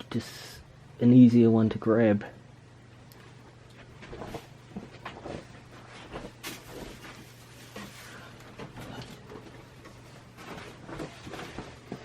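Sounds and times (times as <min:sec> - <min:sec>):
plastic packaging handled: 0:06.4 - 0:09.3.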